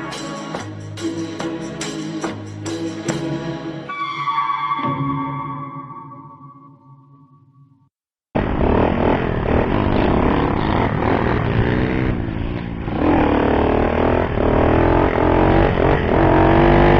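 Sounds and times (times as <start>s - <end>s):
motorcycle engine revving: 8.4s - 16.9s.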